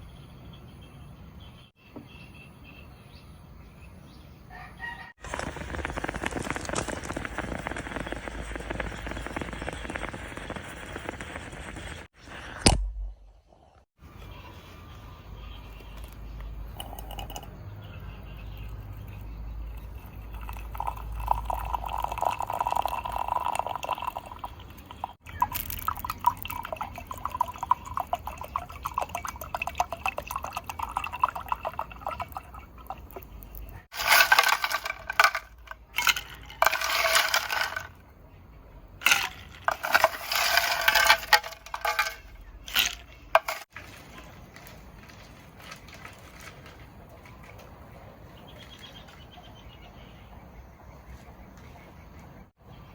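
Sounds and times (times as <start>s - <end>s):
liquid pouring into a container: 19.7s - 37.9s.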